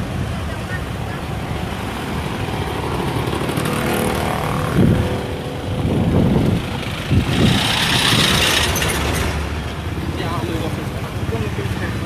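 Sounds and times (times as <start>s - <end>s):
traffic engines running: 0.0s - 12.0s
engine revving: 1.8s - 10.9s.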